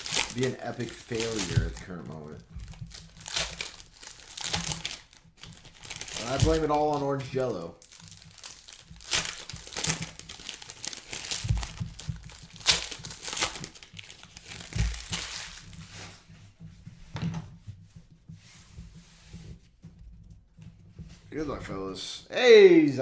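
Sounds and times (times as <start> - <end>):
wrapping crinkling and tearing: 0.0 - 16.2.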